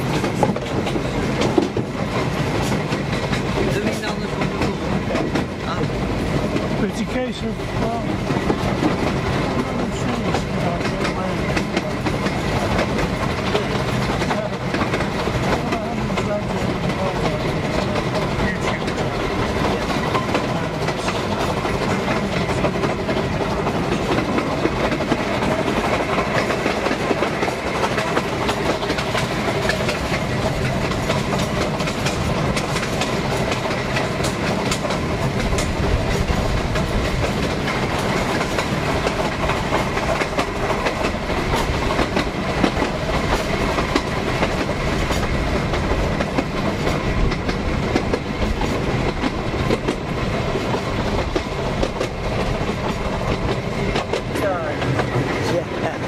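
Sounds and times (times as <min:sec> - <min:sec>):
train wheels running on rails: 0:00.0 - 0:56.0.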